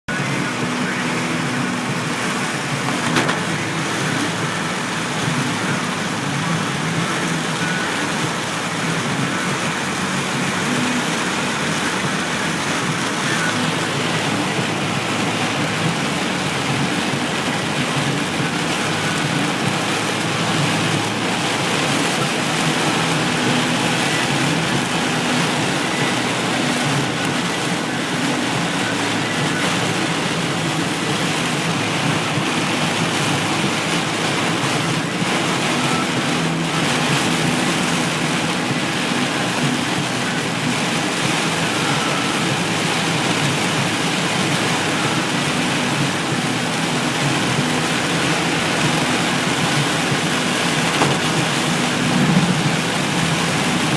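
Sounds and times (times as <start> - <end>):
heavy rain falling: 0.1 - 53.9.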